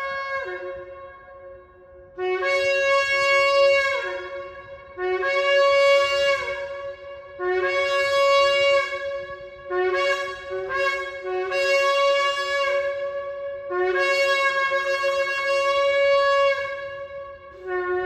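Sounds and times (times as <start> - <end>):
shofar blasts: 0.0 - 18.0.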